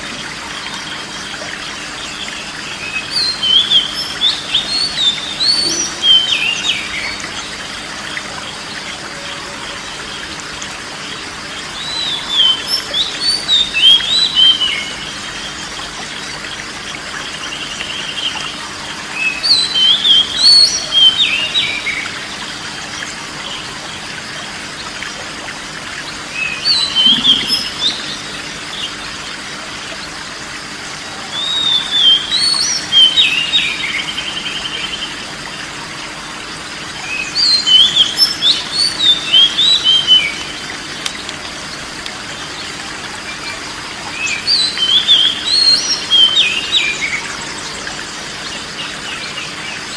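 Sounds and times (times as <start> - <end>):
songbird warbled whistling: 26.5 - 28.4.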